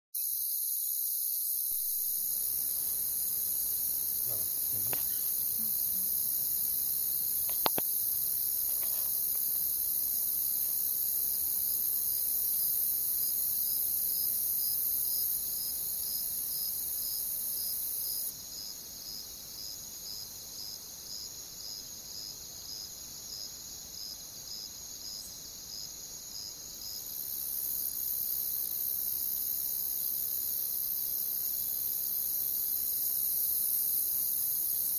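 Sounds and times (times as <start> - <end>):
crickets trilling: 0.2 - 18.7, 23.3 - 34.9
cricket chirping: 0.2 - 34.9
campfire pop: 4.2 - 5.9, 7.4 - 8.0.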